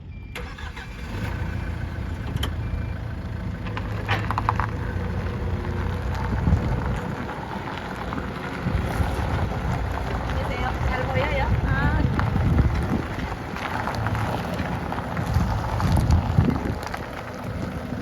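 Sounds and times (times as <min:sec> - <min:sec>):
forklift engine running: 0:00.0 - 0:18.0.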